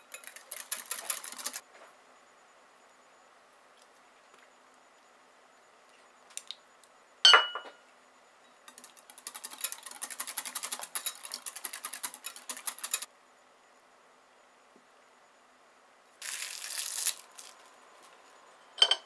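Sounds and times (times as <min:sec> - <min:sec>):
whisk beating in bowl: 0:00.0 - 0:01.6, 0:08.7 - 0:13.1
utensil clinking on bowl: 0:18.8 - 0:19.0.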